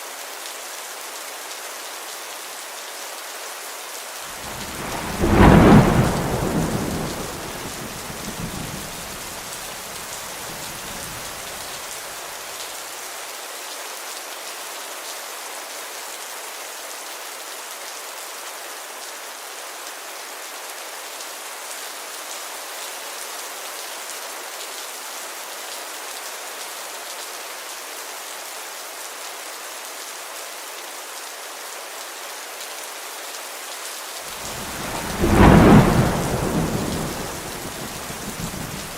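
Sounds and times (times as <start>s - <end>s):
steady rain falling: 0.0s - 38.9s
thunderclap rumbling: 4.4s - 11.6s, 34.3s - 38.9s.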